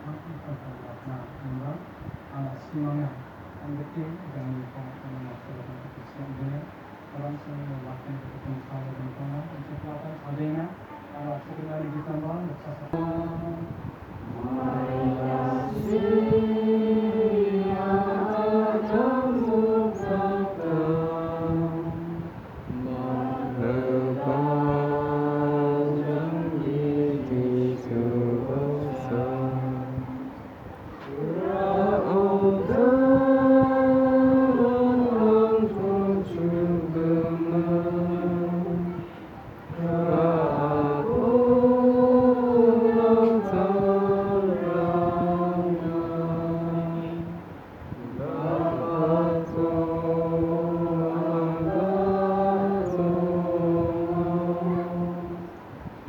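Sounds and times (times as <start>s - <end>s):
person singing a slow chant: 12.9s - 56.0s.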